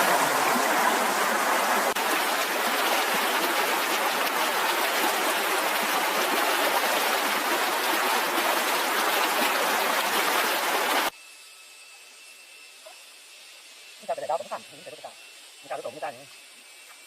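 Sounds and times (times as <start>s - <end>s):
rushing water: 0.0s - 11.1s.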